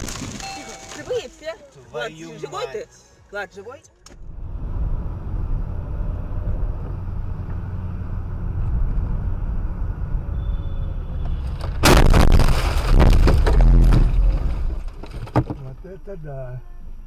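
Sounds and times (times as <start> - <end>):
road noise: 0.0 - 17.0
car engine rumble: 4.0 - 17.0
loud crash-like noise: 11.3 - 15.0.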